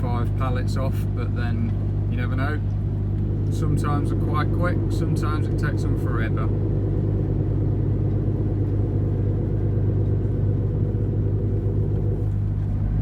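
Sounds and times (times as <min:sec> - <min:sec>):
truck diesel engine rumble: 0:00.0 - 0:13.0.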